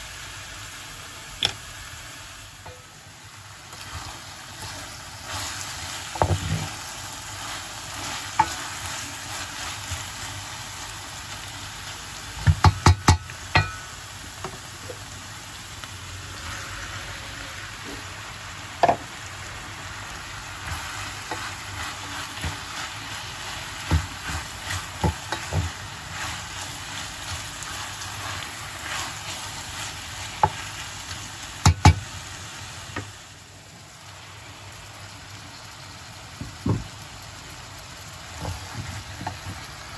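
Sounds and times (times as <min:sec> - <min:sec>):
food sizzling in hot oil: 0:00.0 - 0:39.9
utensil striking pan: 0:02.6 - 0:02.9, 0:08.0 - 0:08.8, 0:12.4 - 0:14.6, 0:18.8 - 0:19.0, 0:23.7 - 0:27.4, 0:31.6 - 0:32.1.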